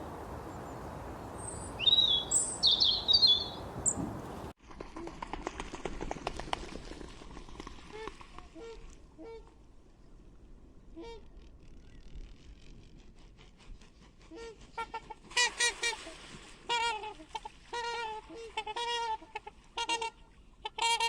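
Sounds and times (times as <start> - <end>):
short pitched bird calls: 1.4 - 4.1.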